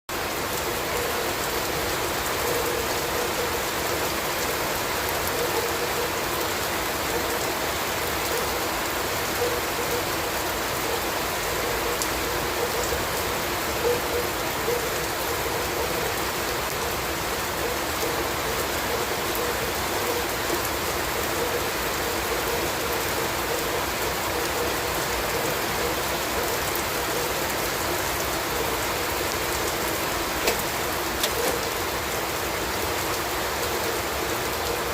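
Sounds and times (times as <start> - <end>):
steady rain hiss: 0.1 - 34.9
raindrop clicks: 30.4 - 31.8.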